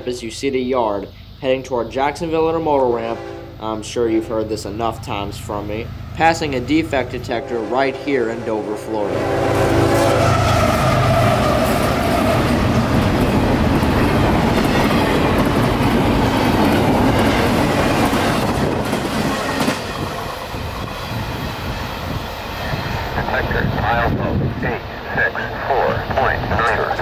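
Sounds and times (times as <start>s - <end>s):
diesel locomotive passing: 2.0s - 27.0s
horn-like tone: 2.9s - 4.3s, 7.2s - 12.4s.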